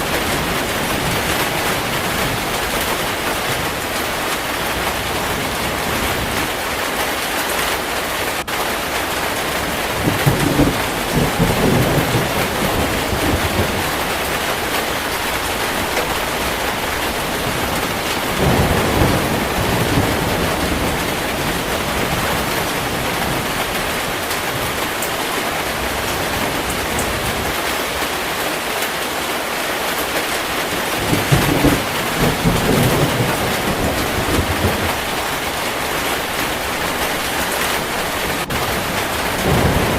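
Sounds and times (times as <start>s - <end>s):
heavy rain falling: 0.0s - 39.9s
low rolls of thunder: 9.4s - 27.6s, 30.8s - 39.9s.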